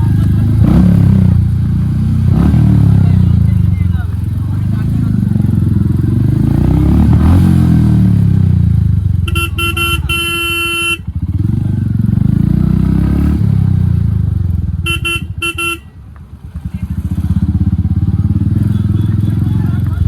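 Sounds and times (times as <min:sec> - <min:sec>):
motorcycle engine running loud: 0:00.0 - 0:20.0
vehicle horn beeping: 0:09.2 - 0:11.4, 0:14.7 - 0:16.1.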